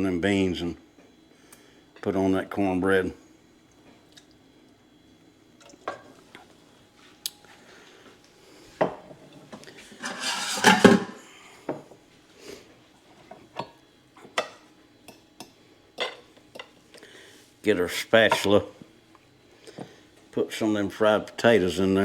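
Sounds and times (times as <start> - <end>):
utensils clinking against dishes: 10.0 - 11.2.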